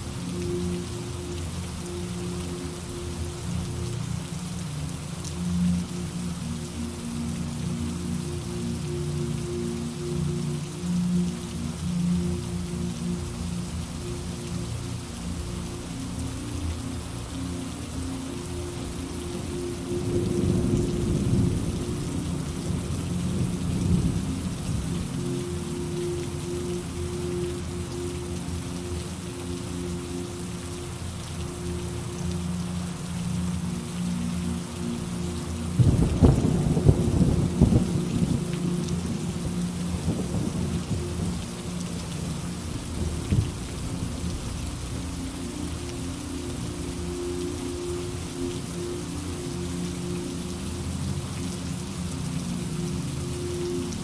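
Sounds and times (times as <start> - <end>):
steady rainfall: 0.0 - 54.0
rolling thunder rumble: 35.8 - 38.5
thunder rumble: 35.8 - 41.6.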